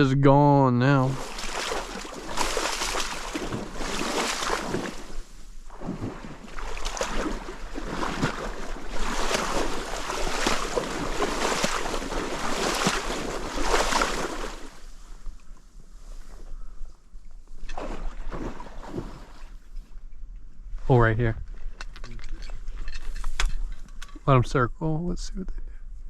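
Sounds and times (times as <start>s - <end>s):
bulrushes rustling: 1.0s - 16.7s.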